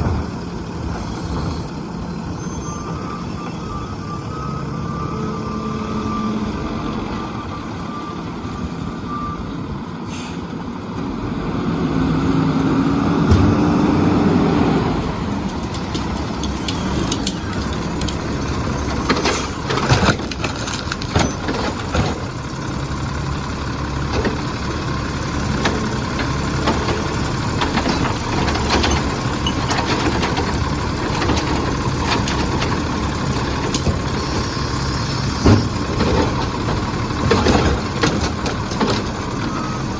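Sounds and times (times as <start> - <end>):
reversing beeps: 2.1 - 9.7, 39.3 - 39.9
truck engine running: 10.6 - 39.9.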